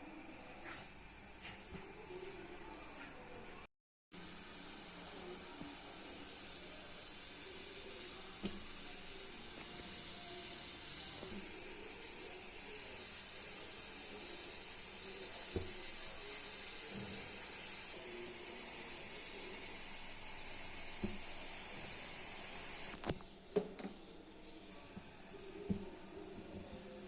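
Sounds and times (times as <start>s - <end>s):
tea hissing in a pan: 4.2s - 23.0s.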